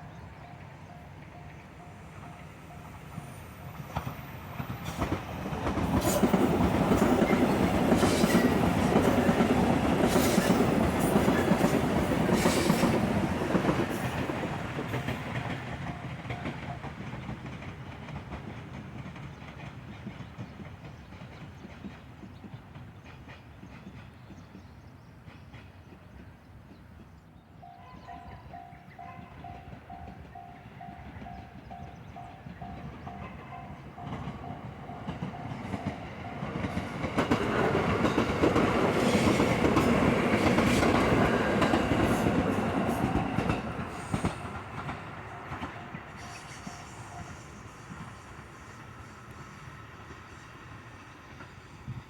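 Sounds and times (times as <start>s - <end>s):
train passing: 0.0s - 52.0s
wheels clacking over rail joints: 3.9s - 23.5s, 31.2s - 46.2s.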